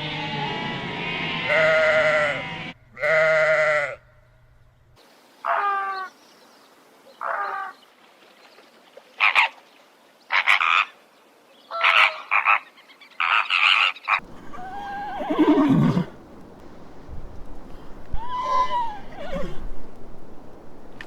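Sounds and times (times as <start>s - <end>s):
animal call falling in pitch: 14.2s - 20.5s.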